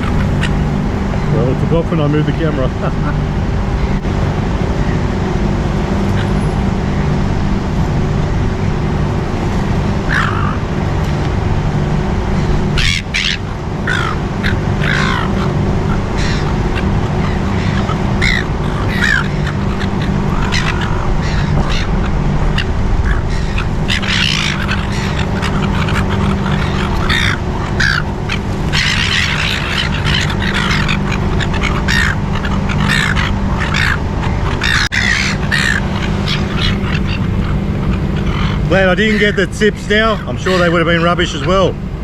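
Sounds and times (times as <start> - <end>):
seagulls squawking: 0.0 - 41.8
low background rumble: 0.0 - 42.0.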